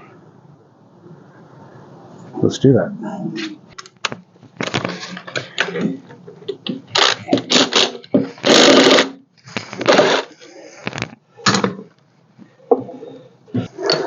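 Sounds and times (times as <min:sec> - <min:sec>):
scraping burst: 0:06.9 - 0:10.6.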